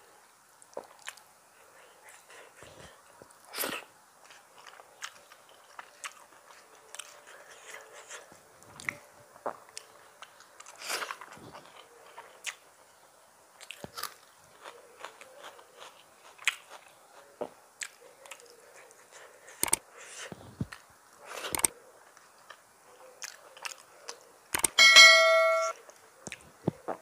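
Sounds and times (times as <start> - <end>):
person chewing with wet mouth sounds: 0.7 - 1.2, 1.8 - 12.7, 13.6 - 22.6, 23.2 - 24.7.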